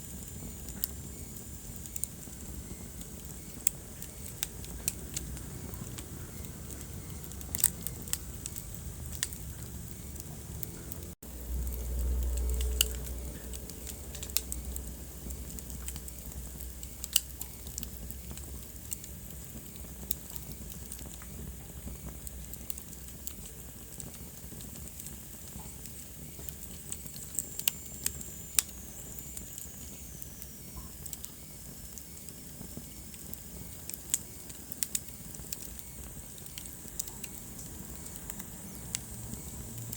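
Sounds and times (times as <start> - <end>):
wood fire crackling: 0.0 - 39.9
low rumble: 4.8 - 16.8.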